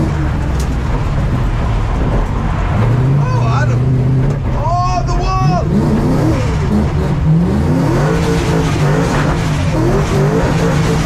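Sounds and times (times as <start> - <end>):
car engine revving hard: 5.4 - 11.0.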